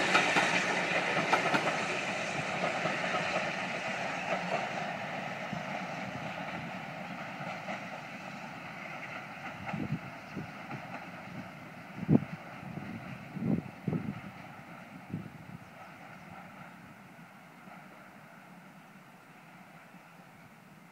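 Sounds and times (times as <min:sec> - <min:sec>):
steam train rumbling past: 0:00.0 - 0:20.9.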